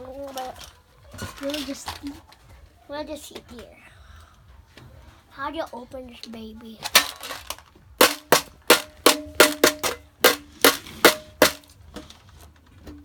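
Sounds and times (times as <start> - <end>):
sharp knocks on hard container: 6.9 - 11.7.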